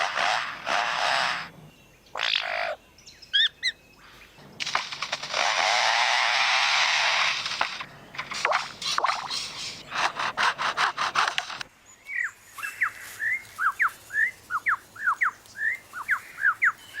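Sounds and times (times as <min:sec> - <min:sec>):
bird whistled chirps: 0:12.1 - 0:17.0.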